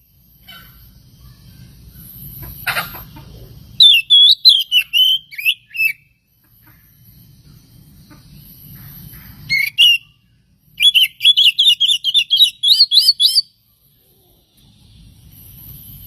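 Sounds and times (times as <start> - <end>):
bird singing sharp notes: 10.8 - 13.5.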